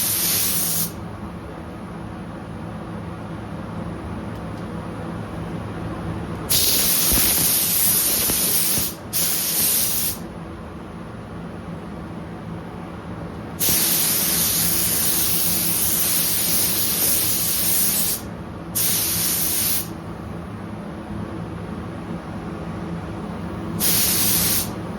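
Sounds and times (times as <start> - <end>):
paint spray gun hissing: 0.0 - 1.0, 6.5 - 10.2, 13.6 - 19.9, 23.8 - 24.8
steady low hum: 0.0 - 24.9.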